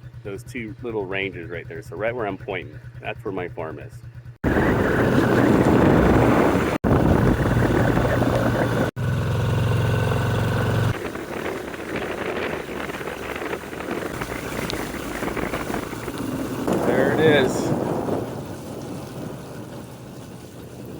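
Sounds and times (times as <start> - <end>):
vehicle engine running: 0.0 - 20.9
wind noise on microphone: 4.4 - 8.9, 10.9 - 20.9.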